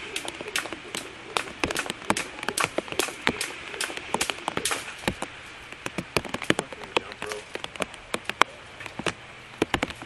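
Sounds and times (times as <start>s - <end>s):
rain falling: 0.0s - 10.0s
raindrops tapping near microphone: 0.0s - 10.0s.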